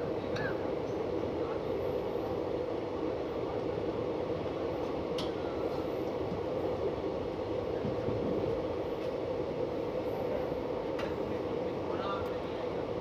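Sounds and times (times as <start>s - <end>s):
passenger train running on track: 0.0s - 13.0s.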